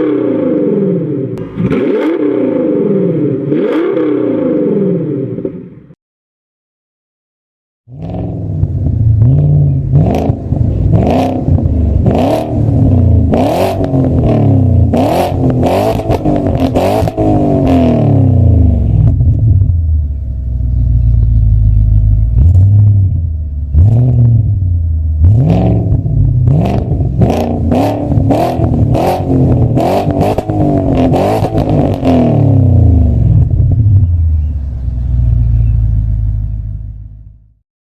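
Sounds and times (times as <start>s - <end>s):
car engine revving: 0.0s - 5.8s, 7.9s - 37.5s
exhaust pops and crackles: 20.8s - 22.8s.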